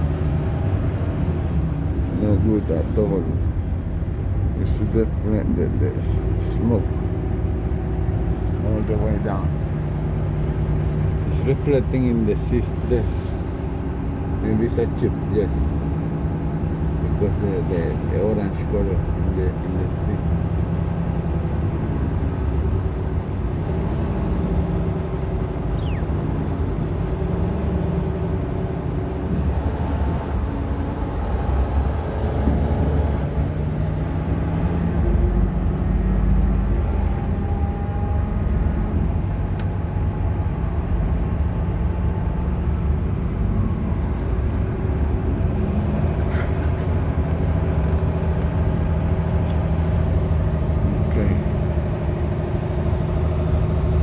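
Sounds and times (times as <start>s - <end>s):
bus engine running: 0.0s - 54.0s
road noise: 0.0s - 54.0s.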